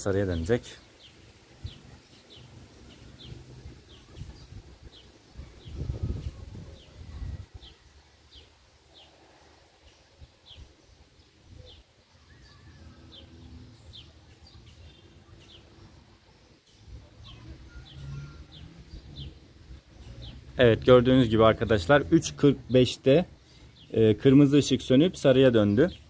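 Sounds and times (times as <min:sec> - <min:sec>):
faint bird chirps: 0:00.5 - 0:20.5.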